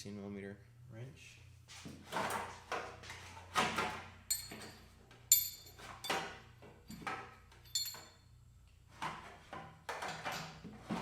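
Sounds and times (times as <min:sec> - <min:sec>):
metallic ring: 0:04.3 - 0:06.1, 0:07.6 - 0:08.3
metal tools knocking and clinking: 0:04.3 - 0:08.3.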